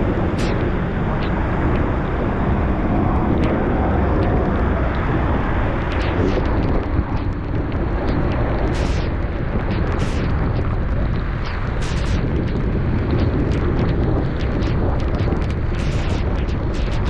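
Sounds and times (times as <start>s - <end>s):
wind over microphone: 0.0s - 17.0s.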